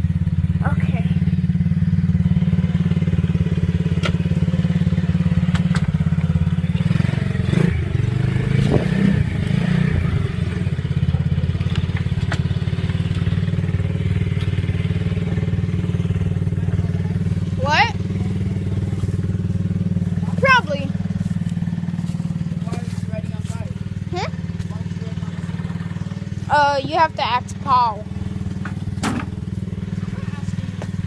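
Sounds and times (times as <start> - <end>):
dirt bike engine running: 0.0 - 31.0.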